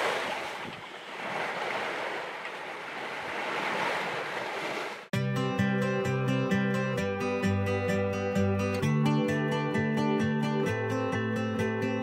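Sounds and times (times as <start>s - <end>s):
sea waves washing: 0.0s - 5.1s
strummed acoustic guitar music: 5.1s - 12.0s.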